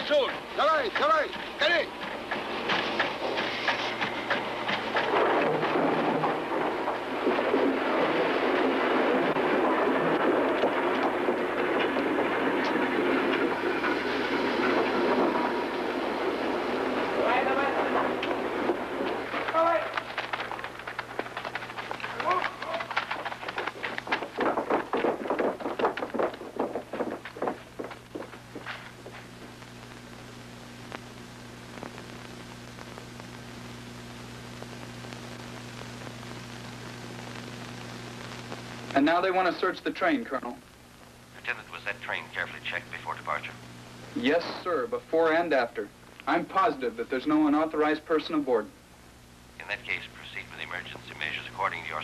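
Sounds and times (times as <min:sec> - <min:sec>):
train wheels clattering on track: 0:00.3 - 0:07.0
steady hiss: 0:28.3 - 0:52.0.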